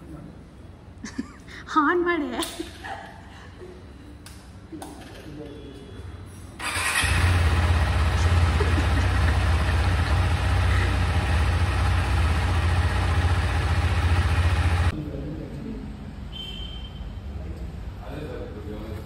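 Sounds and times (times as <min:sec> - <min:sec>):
motorcycle engine running: 0:06.6 - 0:14.9.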